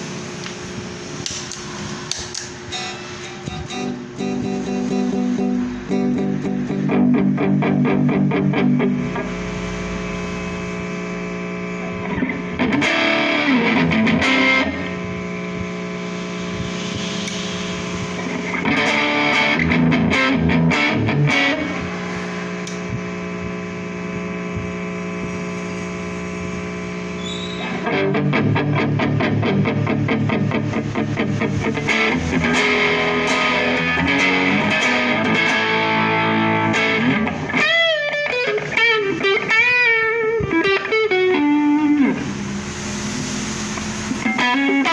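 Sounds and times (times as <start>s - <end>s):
distorted electric guitar: 0.0s - 44.9s.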